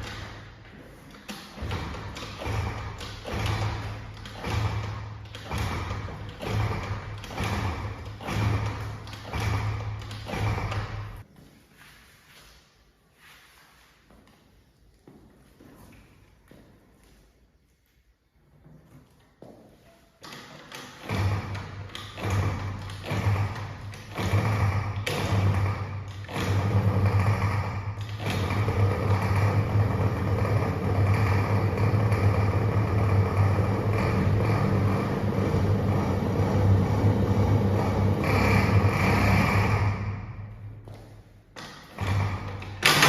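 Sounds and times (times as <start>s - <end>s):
scooter engine revving: 1.4s - 11.3s, 21.0s - 40.8s, 41.8s - 43.0s.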